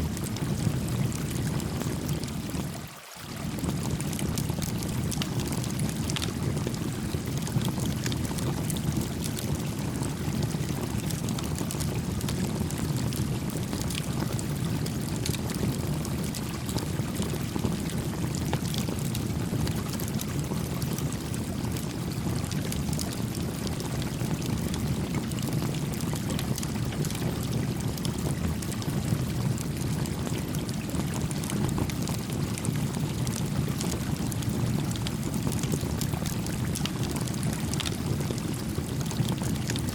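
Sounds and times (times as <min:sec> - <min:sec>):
stream flowing: 0:01.3 - 0:05.2
campfire crackling: 0:17.0 - 0:39.9.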